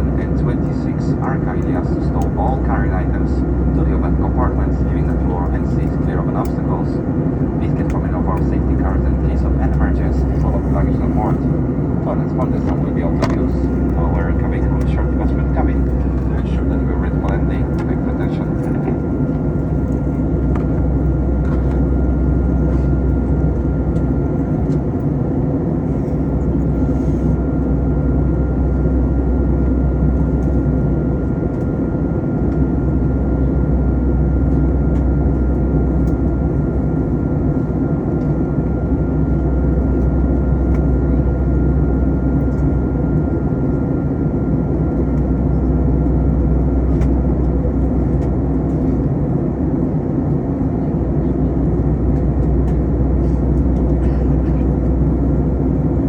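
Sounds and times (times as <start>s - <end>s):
airplane cabin rumble: 0.0s - 56.0s.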